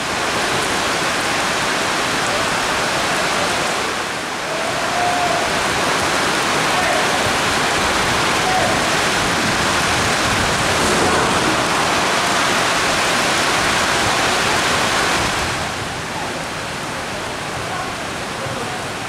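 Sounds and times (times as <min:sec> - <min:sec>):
football crowd roar: 0:10.4 - 0:13.6.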